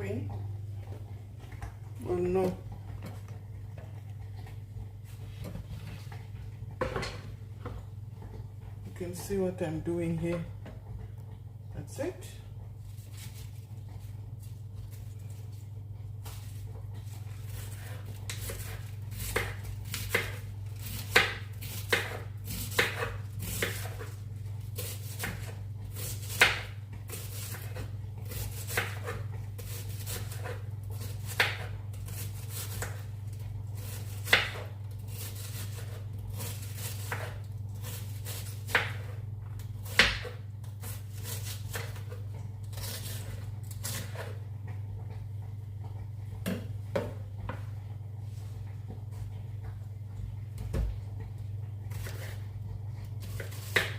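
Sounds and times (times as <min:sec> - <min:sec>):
knife chopping on cutting board: 0:17.6 - 0:24.2, 0:24.8 - 0:33.1, 0:33.8 - 0:44.4, 0:51.9 - 0:52.4, 0:53.2 - 0:53.9.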